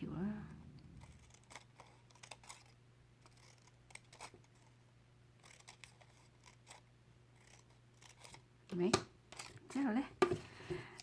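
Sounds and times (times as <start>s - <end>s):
scissors snipping paper: 1.0s - 4.7s, 5.4s - 9.6s.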